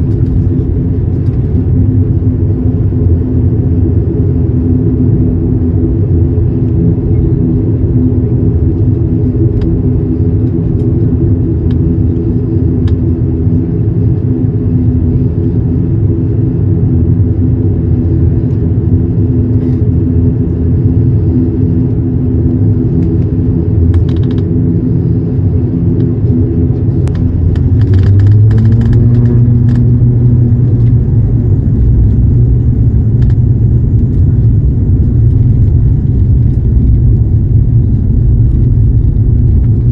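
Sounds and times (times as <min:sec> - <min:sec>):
low cabin rumble: 0:00.0 - 0:39.9
turboprop engines humming: 0:00.0 - 0:39.9
light clicks and rattles: 0:27.0 - 0:29.9.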